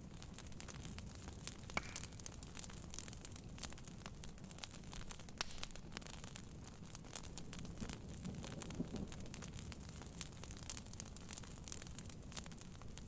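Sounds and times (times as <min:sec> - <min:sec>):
wood fire crackling and popping: 0:00.0 - 0:13.0
heavy rain drumming on a tent: 0:07.0 - 0:12.9.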